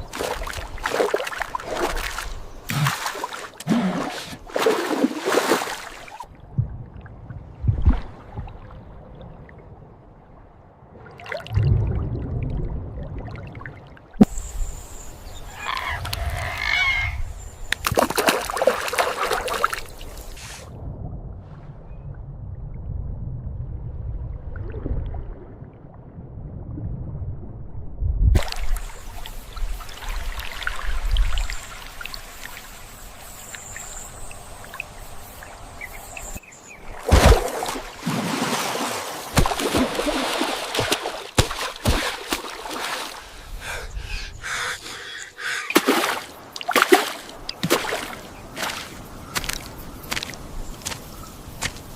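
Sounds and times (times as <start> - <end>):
water sloshing and trickling: 0.0 - 14.3, 17.7 - 20.7, 28.4 - 43.6, 45.7 - 51.0.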